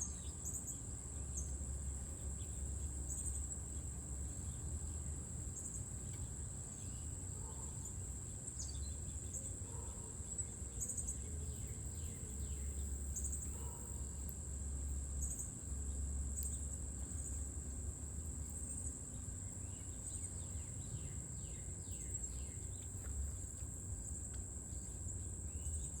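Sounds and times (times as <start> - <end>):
high-pitched insect trill: 6.7 - 22.8.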